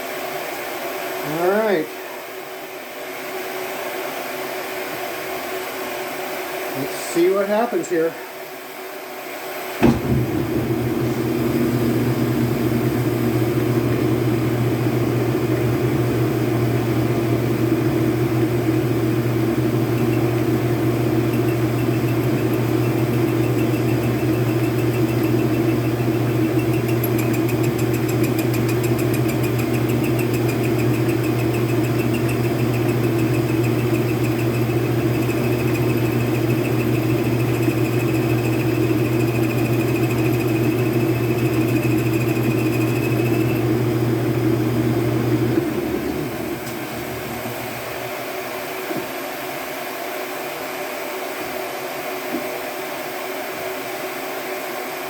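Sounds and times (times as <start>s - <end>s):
faint high whine: 9.8s - 48.2s
metal lathe machining: 9.8s - 48.2s.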